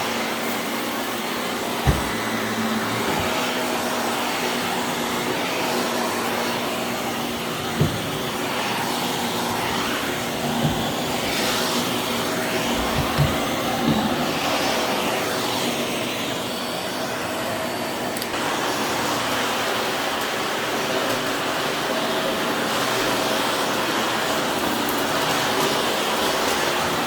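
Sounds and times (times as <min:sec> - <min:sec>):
vacuum cleaner whine: 0:00.0 - 0:27.0
knocks against floor: 0:01.8 - 0:02.2.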